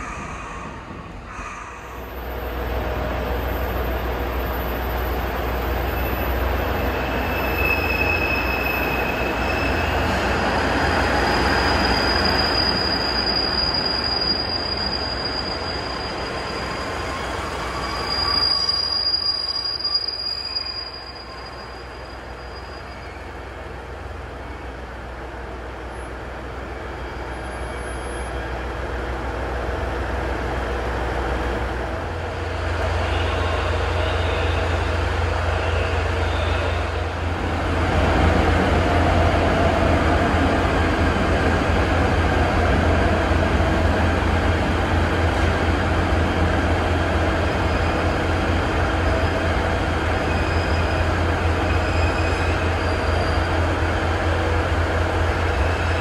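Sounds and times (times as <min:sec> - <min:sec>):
high wheel squeal: 0:04.3 - 0:23.4, 0:32.9 - 0:37.0, 0:50.1 - 0:54.0.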